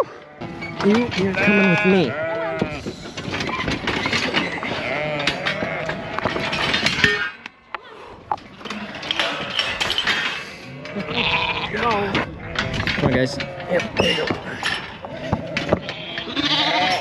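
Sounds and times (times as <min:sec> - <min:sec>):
lambs and sheep bleating: 0:00.0 - 0:02.9, 0:04.5 - 0:07.3, 0:10.6 - 0:14.2, 0:15.1 - 0:17.0.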